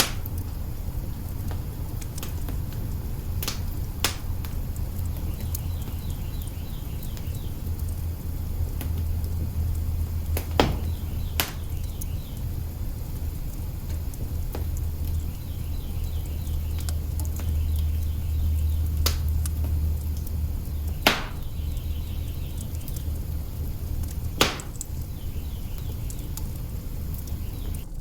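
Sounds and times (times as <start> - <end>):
low rumble of fire: 0.0 - 28.0
sharp fire pops: 0.0 - 28.0
wood fire crackling: 0.0 - 28.0.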